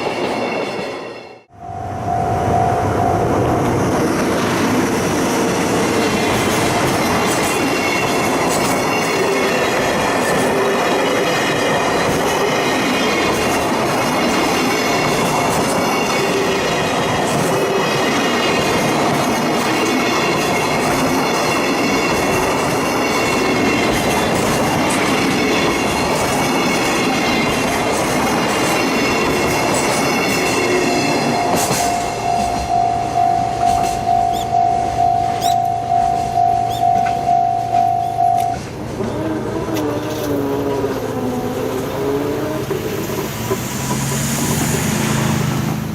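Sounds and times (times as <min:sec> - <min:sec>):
train wheels rumbling: 0:00.0 - 0:45.9
pulsing ringing tone: 0:01.5 - 0:03.5, 0:28.8 - 0:38.6
rail clatter: 0:03.5 - 0:34.6, 0:35.3 - 0:45.9.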